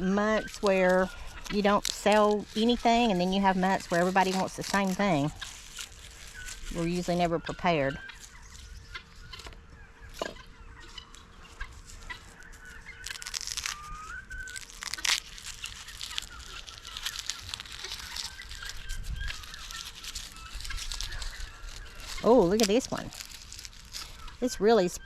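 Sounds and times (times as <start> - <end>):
guinea fowl chirping and clucking: 0.1 - 1.6, 5.3 - 15.1, 16.0 - 22.5, 23.1 - 25.0.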